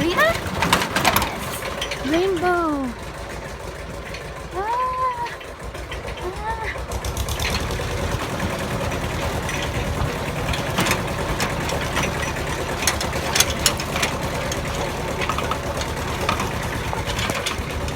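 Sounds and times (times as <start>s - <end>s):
tractor engine chugging: 0.0s - 17.9s.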